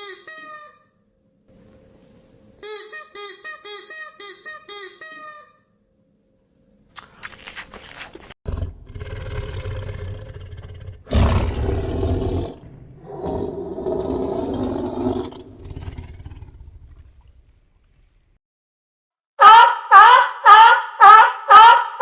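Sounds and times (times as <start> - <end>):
large animal bellowing: 8.5 - 17.3.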